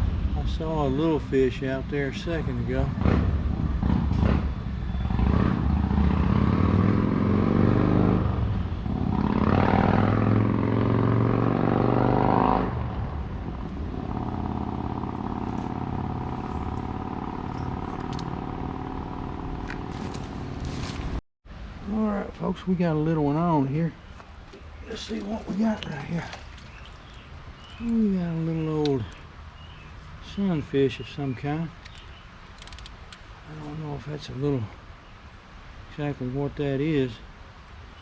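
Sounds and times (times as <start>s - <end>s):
steady engine hum: 0.0s - 34.6s
vehicle engine accelerating: 2.8s - 21.2s.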